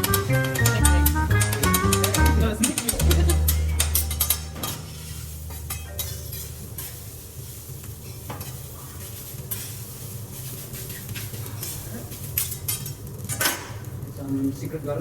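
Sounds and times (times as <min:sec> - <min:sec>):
steady low hum: 0:02.9 - 0:08.3
food sizzling on griddle: 0:05.1 - 0:13.3
metal spatulas scraping and tapping: 0:10.4 - 0:13.6.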